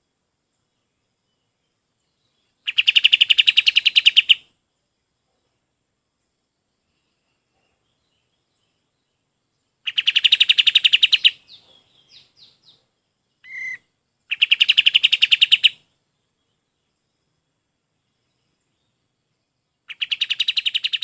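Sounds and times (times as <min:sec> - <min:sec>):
songbird trilling: 0:02.5 - 0:04.4, 0:09.8 - 0:15.8, 0:19.9 - 0:21.0.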